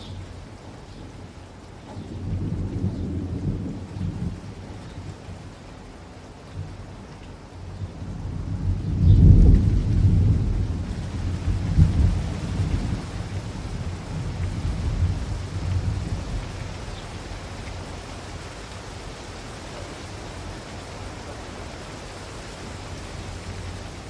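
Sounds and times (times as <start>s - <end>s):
steady rain: 0.0s - 24.0s
thunder rumbling: 8.0s - 18.1s.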